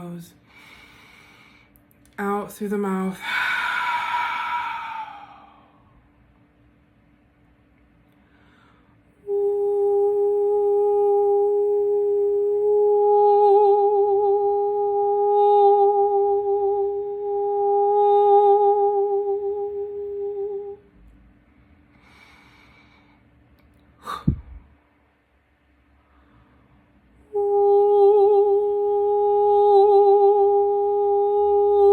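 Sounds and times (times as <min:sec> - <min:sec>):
soft breath: 0:00.4 - 0:01.8, 0:03.2 - 0:06.1, 0:08.1 - 0:09.2, 0:21.4 - 0:23.4, 0:25.9 - 0:26.9
woman humming: 0:03.2 - 0:05.8, 0:09.2 - 0:20.8, 0:24.0 - 0:24.7, 0:27.3 - 0:31.9.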